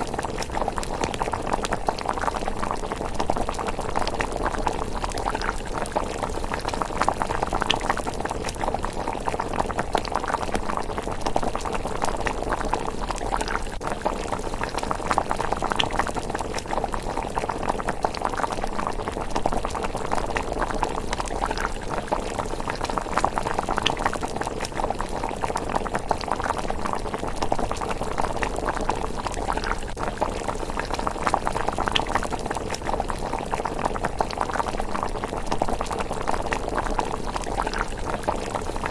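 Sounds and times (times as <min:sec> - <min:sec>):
porridge bubbling in a pot: 0:00.0 - 0:38.9.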